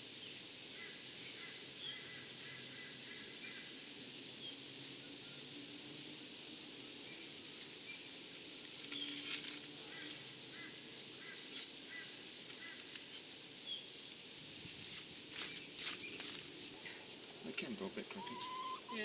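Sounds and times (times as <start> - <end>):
birds chirping: 17.4 - 19.0.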